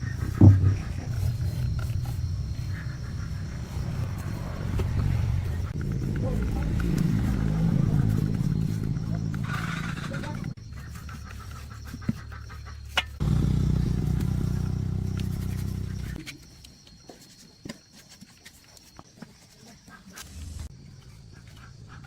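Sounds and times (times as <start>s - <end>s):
rapidly pulsing mechanical run: 0.0s - 10.6s.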